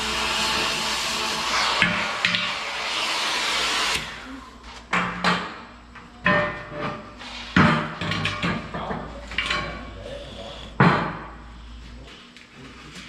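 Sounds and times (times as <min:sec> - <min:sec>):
cutting torch hissing: 0:00.0 - 0:04.7.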